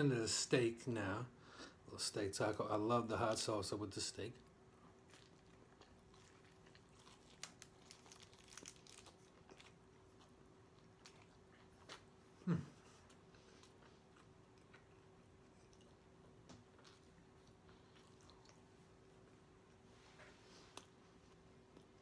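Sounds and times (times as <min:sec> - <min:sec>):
man chewing: 0:04.5 - 0:19.8.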